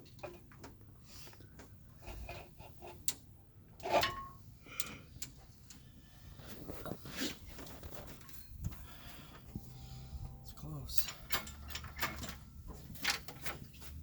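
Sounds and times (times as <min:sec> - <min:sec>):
metal clinks and knocks: 0:09.5 - 0:13.8.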